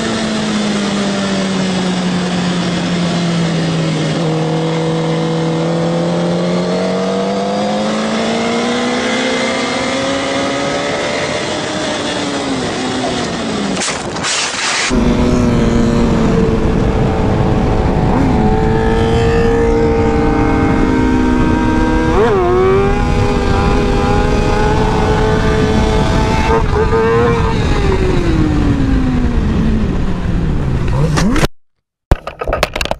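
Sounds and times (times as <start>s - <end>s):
engine running steadily and revving: 14.9s - 31.4s
engine accelerating: 14.9s - 31.5s.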